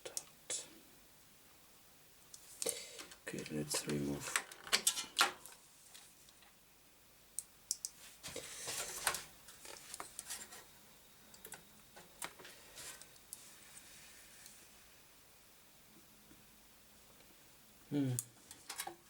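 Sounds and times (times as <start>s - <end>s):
rustling scrape: 8.0s - 10.7s
clicks of computer parts handled: 18.5s - 19.0s.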